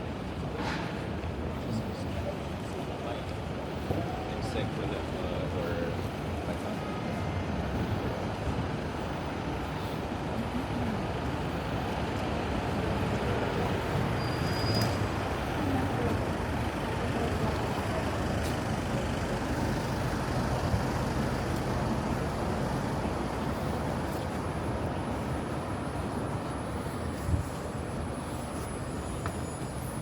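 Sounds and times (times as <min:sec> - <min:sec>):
city street traffic: 0:00.0 - 0:30.0
high squeal: 0:14.1 - 0:15.1.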